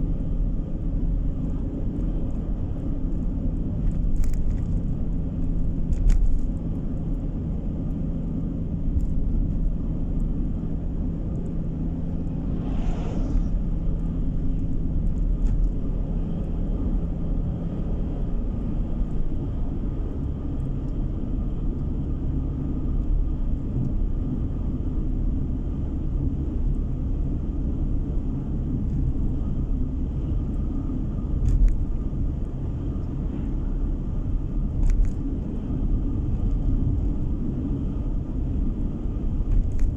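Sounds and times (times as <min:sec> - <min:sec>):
engine and tyre rumble: 0:00.0 - 0:39.9
brief whoosh: 0:11.9 - 0:15.0.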